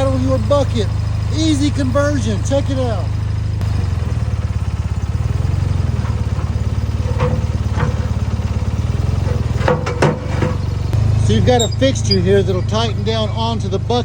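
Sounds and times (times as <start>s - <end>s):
backhoe engine idling: 0.0s - 14.0s
short metal clanks: 5.8s - 13.0s.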